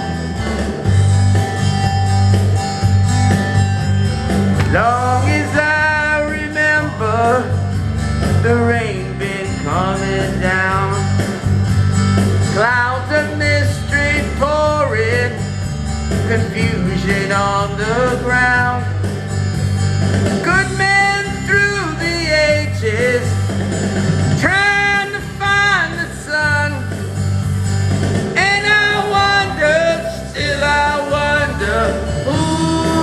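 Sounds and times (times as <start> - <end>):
bass and steady beat: 0.0 - 33.0
strummed guitar: 0.0 - 33.0
person singing: 4.6 - 7.8, 8.4 - 11.2, 12.5 - 15.4, 16.2 - 18.9, 24.4 - 26.9, 28.4 - 33.0.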